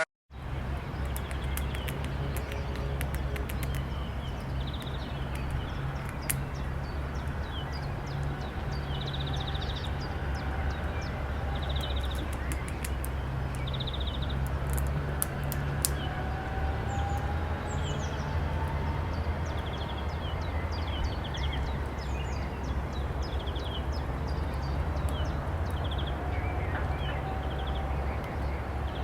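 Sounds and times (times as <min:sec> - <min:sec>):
sharp clicks: 0:01.0 - 0:06.6, 0:11.8 - 0:16.1.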